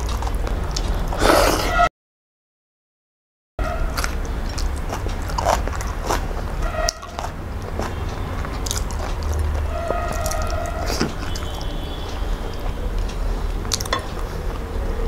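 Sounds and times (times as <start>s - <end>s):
biting into chili: 3.9s - 11.6s
chewing with wet mouth clicks: 3.9s - 14.7s.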